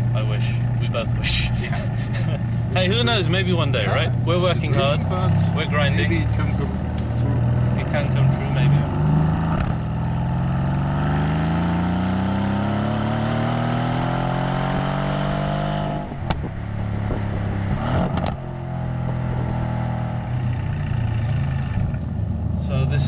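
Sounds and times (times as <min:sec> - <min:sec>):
car engine accelerating: 0:00.0 - 0:23.0
exhaust cracks: 0:00.0 - 0:23.0.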